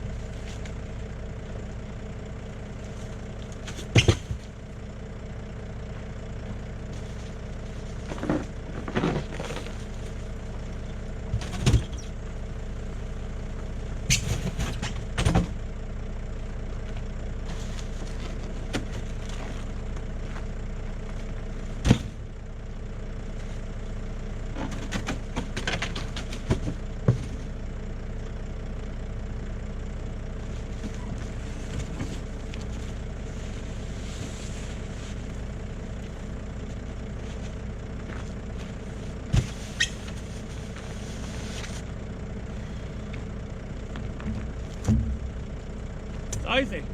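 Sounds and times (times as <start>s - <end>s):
truck engine idling: 0.0s - 46.9s
short knocks and clunks: 3.6s - 4.5s, 44.2s - 45.4s.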